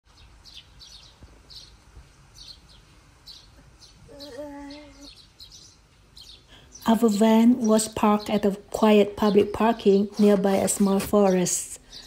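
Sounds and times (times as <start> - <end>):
birds chirping: 0.1 - 12.0
person humming: 4.1 - 5.1.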